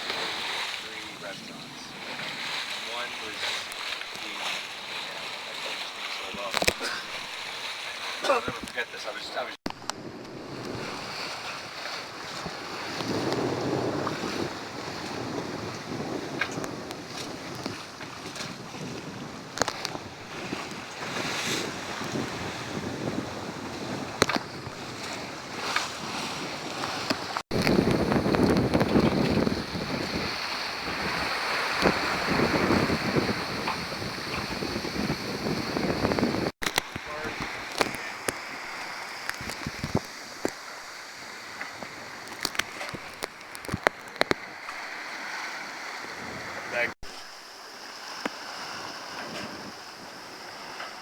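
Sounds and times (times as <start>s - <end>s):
water washing against boat: 0.0s - 51.0s
wind buffeting microphone: 9.7s - 46.9s, 48.5s - 51.0s.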